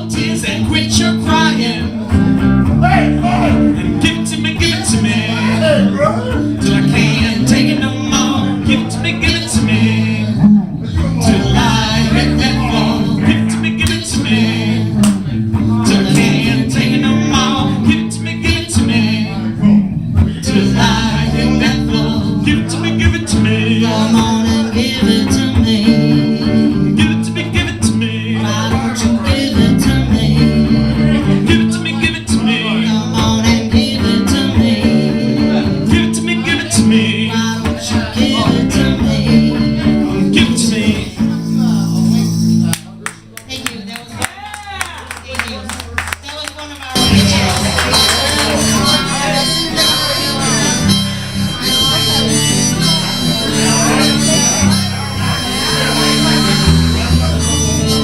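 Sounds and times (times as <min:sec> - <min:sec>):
acoustic guitar music: 0:00.0 - 0:58.0.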